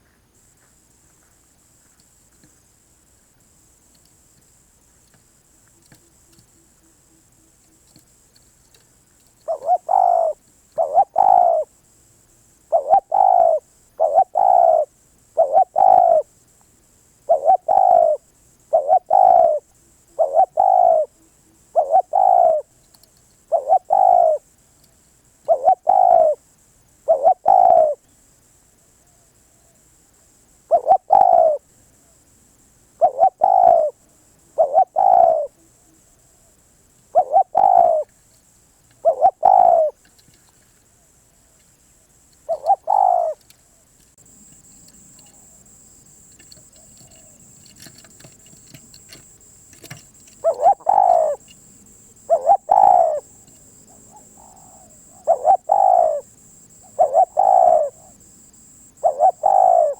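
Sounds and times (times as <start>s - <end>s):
dove cooing: 9.4s - 11.7s, 12.7s - 16.3s, 17.3s - 21.2s, 21.8s - 22.7s, 23.5s - 24.5s, 25.4s - 26.4s, 27.1s - 28.0s, 30.7s - 31.6s, 33.0s - 35.6s, 37.1s - 38.1s, 39.0s - 40.0s, 42.5s - 59.9s.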